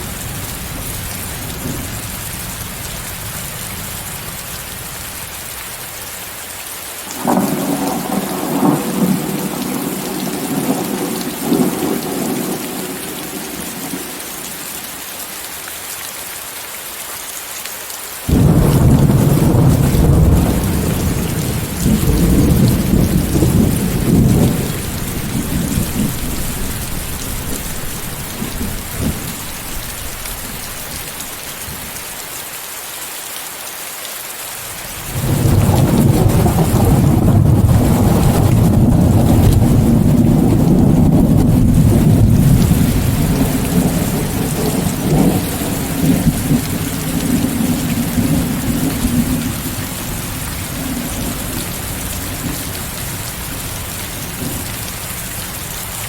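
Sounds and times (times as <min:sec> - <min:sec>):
rolling thunder: 0:00.0 - 0:02.6, 0:07.2 - 0:14.2, 0:18.3 - 0:30.9, 0:35.0 - 0:54.7
rain hiss: 0:00.0 - 0:56.0.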